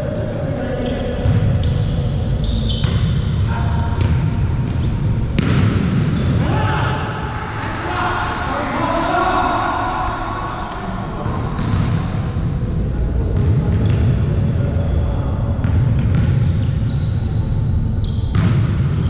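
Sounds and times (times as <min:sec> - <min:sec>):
shoes squeaking on court: 0:00.8 - 0:03.2, 0:04.1 - 0:06.3
volleyball struck and thudding: 0:05.4 - 0:06.0, 0:18.3 - 0:18.9.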